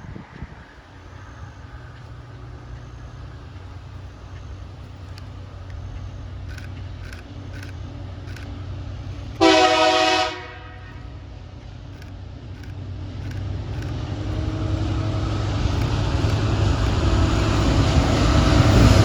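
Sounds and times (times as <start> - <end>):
diesel train engines rumbling: 0.0 - 19.0
locomotive horn blast: 9.4 - 11.2.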